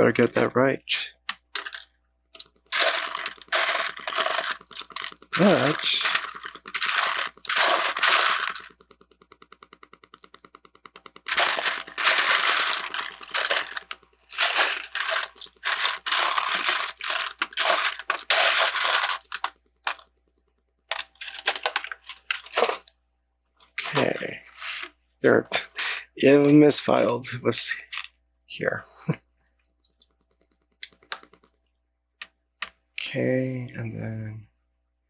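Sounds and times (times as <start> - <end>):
plastic bricks clattering: 1.2 - 9.0, 10.9 - 20.1, 20.9 - 22.9.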